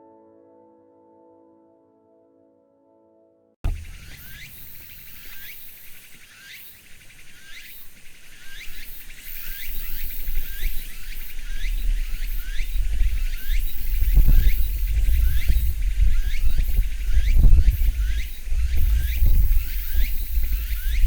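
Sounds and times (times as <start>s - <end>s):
low rumble: 3.7s - 6.2s, 10.2s - 21.0s
cicadas high-pitched drone: 3.7s - 21.0s
cicadas rising calls: 3.7s - 21.0s.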